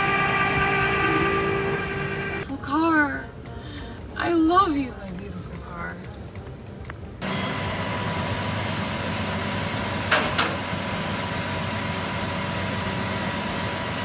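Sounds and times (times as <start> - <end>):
vehicle engine running: 0.0 - 2.4, 7.2 - 14.0.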